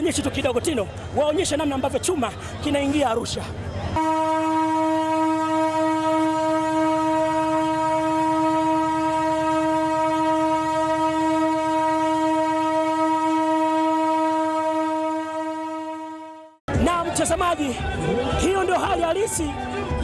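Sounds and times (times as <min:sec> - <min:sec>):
train rumble: 0:00.0 - 0:20.0
train horn long note: 0:04.0 - 0:16.6.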